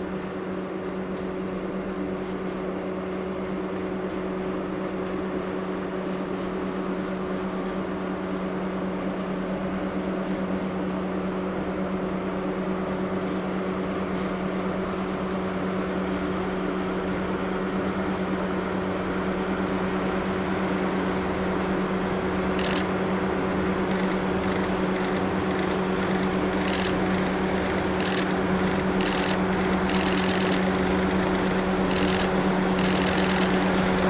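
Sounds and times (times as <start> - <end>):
diesel locomotive engine drone: 0.0 - 34.0
sharp clicks: 21.9 - 34.0.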